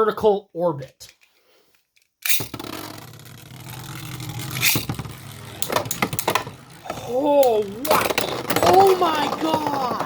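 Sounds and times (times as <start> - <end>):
spinning tops clacking together: 2.2 - 9.8
spinning tops whirring and scraping: 2.2 - 10.0.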